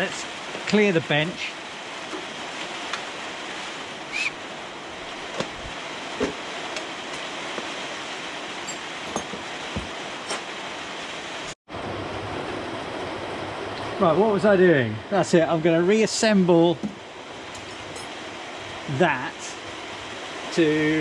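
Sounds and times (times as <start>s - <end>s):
tools knocking and clinking: 8.6s - 10.5s
steady hiss: 14.0s - 21.0s.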